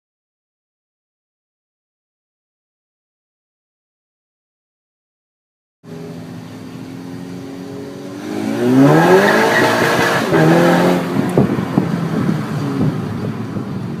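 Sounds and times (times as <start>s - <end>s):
car engine accelerating: 5.9s - 14.0s.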